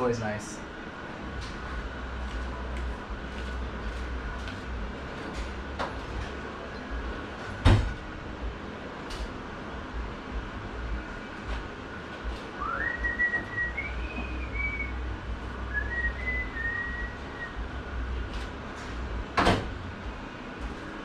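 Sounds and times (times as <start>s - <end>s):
person whistling: 12.6s - 15.0s, 15.7s - 17.6s.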